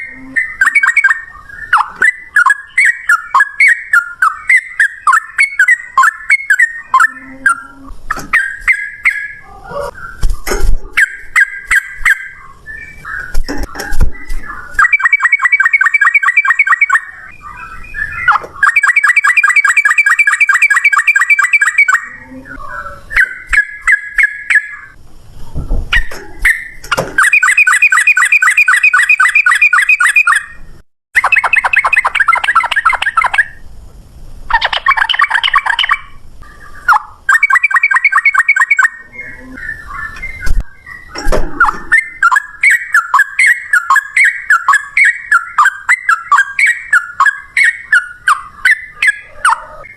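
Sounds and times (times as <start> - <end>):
bulbul singing: 0.0 - 25.0, 25.9 - 33.6, 34.5 - 49.9.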